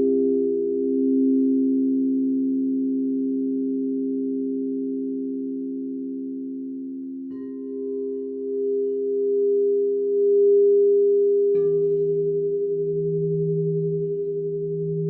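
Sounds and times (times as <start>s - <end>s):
bowl struck: 0.0s - 15.0s
lower-pitched bowl struck: 0.0s - 15.0s
singing bowls ringing: 0.0s - 15.0s.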